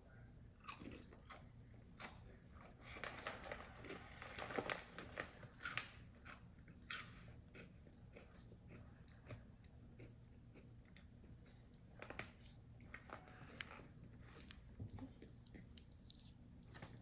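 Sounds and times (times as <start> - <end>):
person chewing crunchy chips: 0.6 - 3.0, 3.7 - 11.8.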